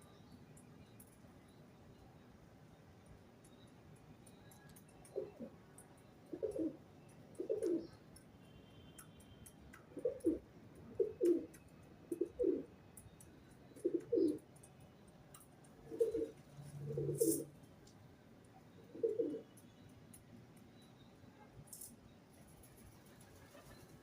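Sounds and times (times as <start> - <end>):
pigeon cooing: 6.3 - 6.8, 7.4 - 7.9, 10.0 - 11.5, 12.1 - 12.7, 13.8 - 14.4, 15.8 - 17.5, 18.9 - 19.4.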